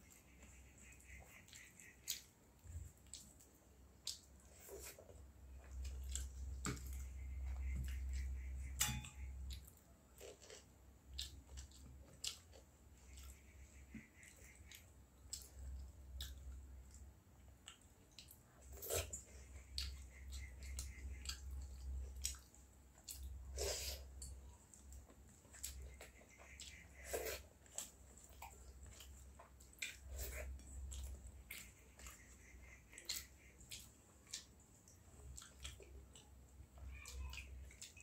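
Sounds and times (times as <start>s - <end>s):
chewing: 0.9s - 38.0s.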